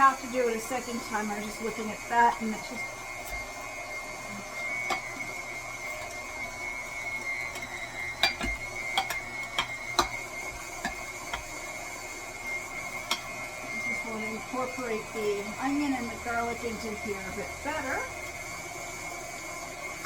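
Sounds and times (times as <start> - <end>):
stand mixer motor whine: 0.0 - 20.0.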